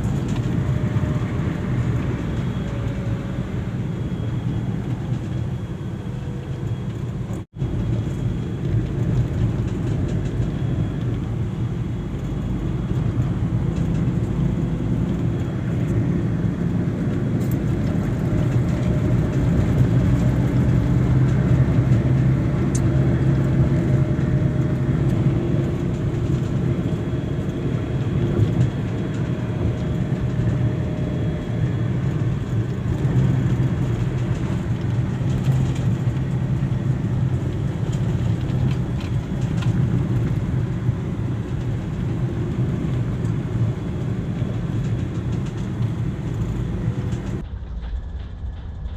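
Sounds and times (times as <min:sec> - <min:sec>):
vehicle engine and road noise: 0:00.0 - 0:48.9.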